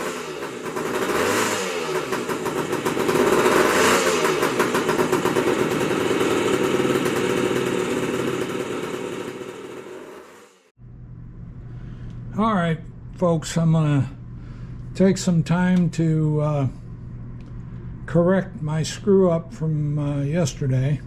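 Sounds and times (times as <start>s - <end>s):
motorcycle engine revving: 0.0s - 10.7s.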